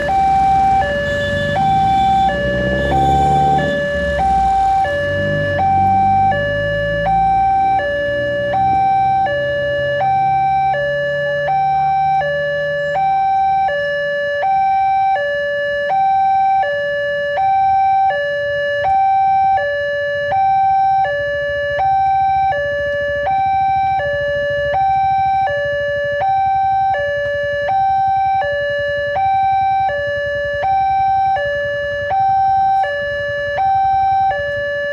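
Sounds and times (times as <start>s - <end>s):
low engine rumble: 0.0s - 8.6s
level-crossing two-tone alarm: 0.0s - 34.9s.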